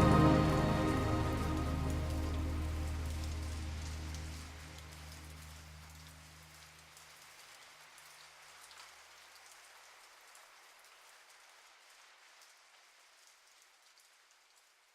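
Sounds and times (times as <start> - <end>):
low held notes: 0.0 - 5.9
soft rain patter: 0.0 - 14.9.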